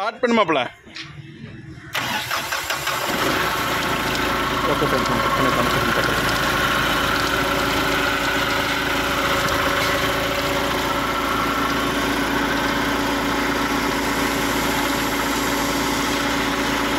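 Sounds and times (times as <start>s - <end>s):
diesel engine idling: 1.9s - 16.9s.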